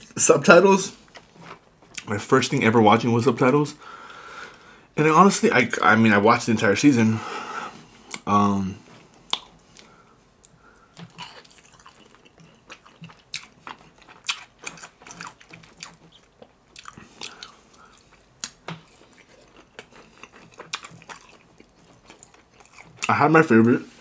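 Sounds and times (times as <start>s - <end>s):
quiet chewing: 8.9s - 23.2s
crunching fried chicken breading: 11.0s - 23.4s.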